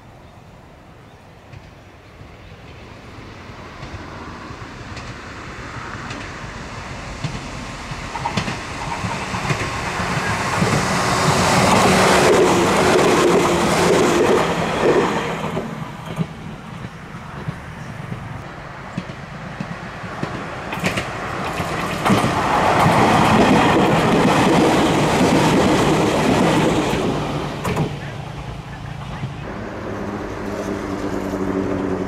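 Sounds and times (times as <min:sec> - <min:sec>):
train passing close by: 0:00.0 - 0:32.0
wheels clicking over rail joints: 0:04.9 - 0:05.3, 0:06.0 - 0:28.2.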